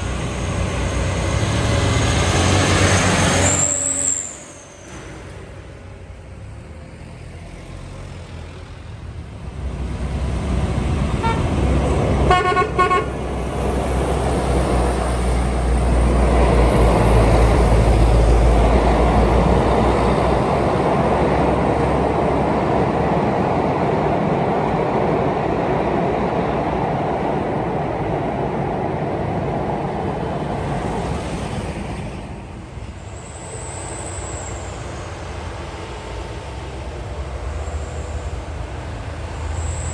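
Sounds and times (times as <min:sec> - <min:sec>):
diesel truck engine rumble: 0:04.4 - 0:39.9
short horn toots: 0:12.3 - 0:13.2.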